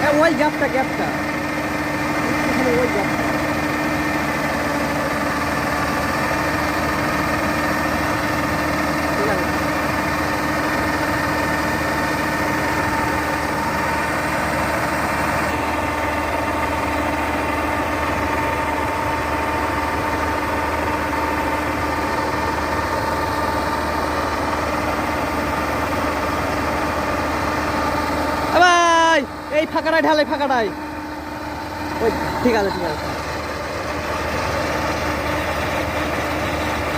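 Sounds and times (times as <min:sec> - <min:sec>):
harvester engine hum: 0:00.0 - 0:36.9
steady machine whine: 0:00.0 - 0:36.9.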